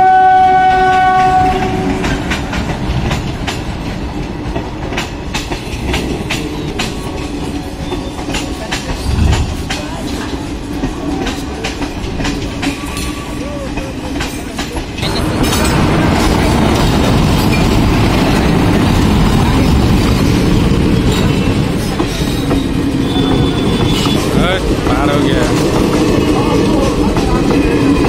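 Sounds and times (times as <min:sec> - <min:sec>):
train horn: 0:00.0 - 0:02.2
train coaches rumbling past: 0:00.0 - 0:28.0
wheels clacking over rail joints: 0:00.6 - 0:28.0.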